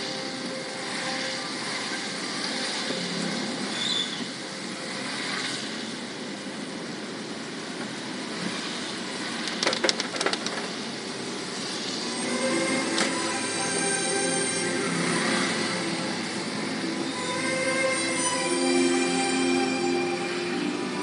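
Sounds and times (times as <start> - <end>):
car driving on wet road: 0.0 - 11.4
sharp clicks: 9.4 - 10.7.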